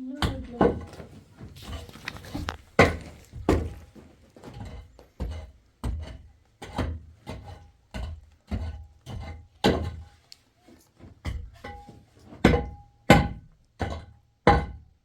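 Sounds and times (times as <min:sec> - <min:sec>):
hand tool striking hard material: 0:00.2 - 0:10.1.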